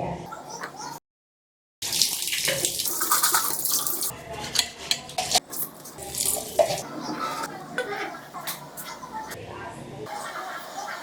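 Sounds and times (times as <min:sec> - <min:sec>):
tap water splashing into sink: 0:01.8 - 0:04.0.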